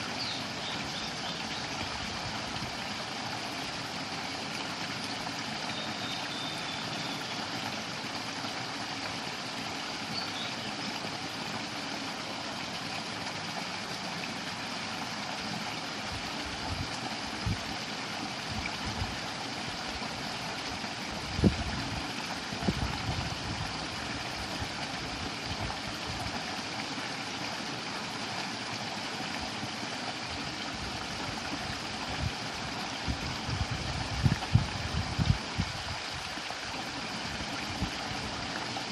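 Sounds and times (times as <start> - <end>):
stream water flowing: 0.0 - 38.9
wind buffeting microphone: 33.0 - 36.1.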